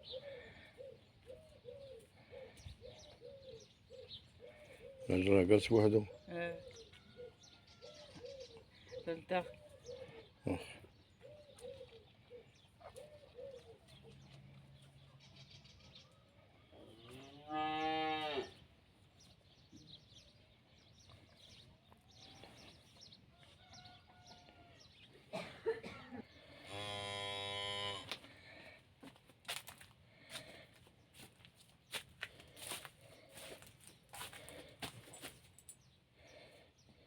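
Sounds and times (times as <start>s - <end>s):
cattle mooing: 17.2s - 18.6s.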